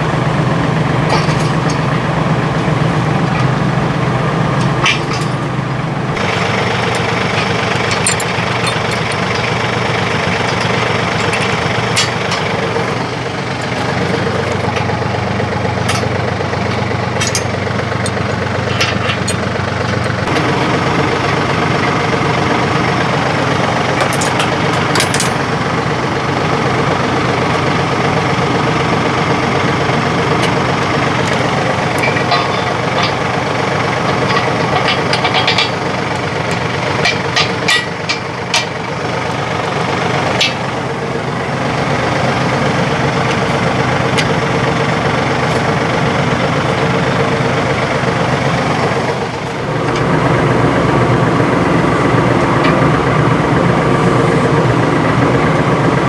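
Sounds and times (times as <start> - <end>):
tractor engine running: 0.0 - 56.0
metallic clicks and knocks: 4.6 - 5.5, 6.2 - 20.4, 23.9 - 25.5, 30.3 - 39.4, 40.2 - 40.8.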